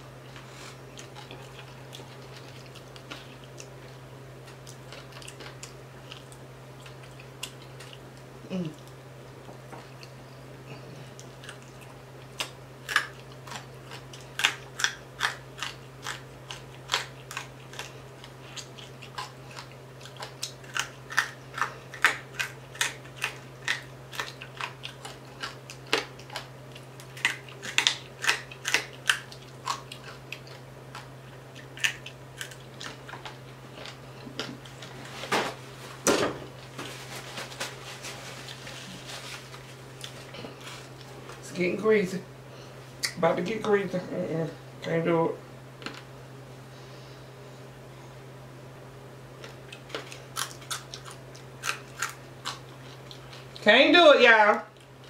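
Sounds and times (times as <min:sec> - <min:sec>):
crunchy chewing: 0:00.0 - 0:41.4, 0:49.3 - 0:53.7, 0:54.6 - 0:55.0
steady low hum: 0:00.0 - 0:55.0
paper napkin rustling: 0:36.6 - 0:41.4.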